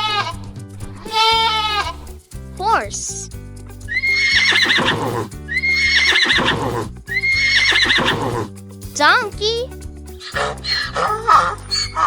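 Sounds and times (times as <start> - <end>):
children's background music: 0.0 - 12.0
horse whinnying: 3.9 - 8.5.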